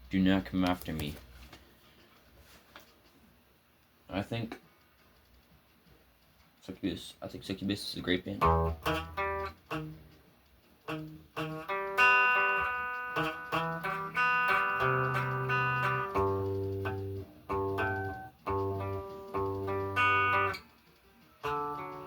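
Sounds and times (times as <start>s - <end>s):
solo guitar playing: 8.4s - 10.1s, 10.8s - 20.7s, 21.3s - 22.0s.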